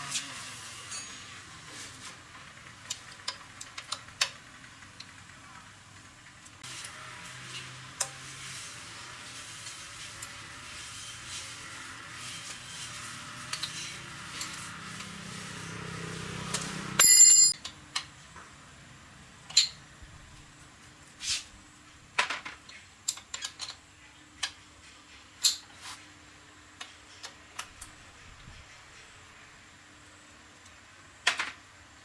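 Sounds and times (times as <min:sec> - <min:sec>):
metal tools clinking: 0:00.8 - 0:01.5, 0:17.0 - 0:17.6
loud metallic ring: 0:17.0 - 0:17.6.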